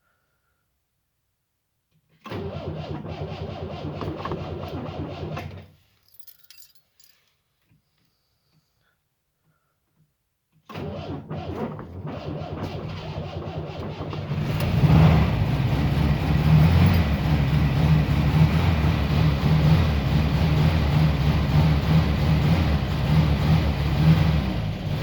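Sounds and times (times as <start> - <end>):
car engine starting and running: 2.3 - 5.6, 10.7 - 25.0.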